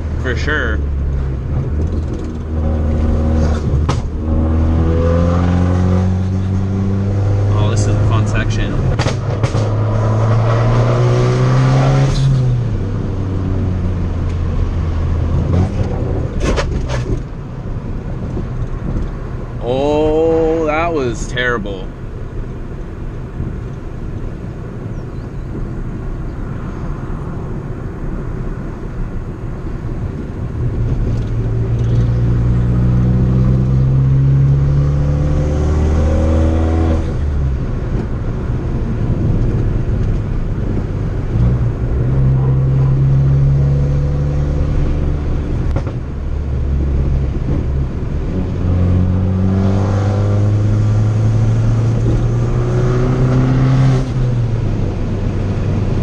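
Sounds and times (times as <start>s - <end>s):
car engine accelerating hard: 0.0s - 17.4s, 29.9s - 56.0s
exhaust pop: 1.5s - 4.4s, 8.8s - 10.0s.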